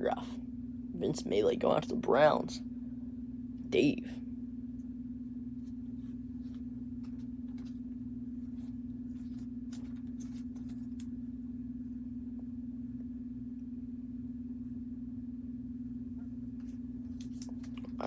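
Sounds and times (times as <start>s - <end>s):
steady low hum: 0.0s - 18.0s
trading cards rustling: 5.6s - 11.2s.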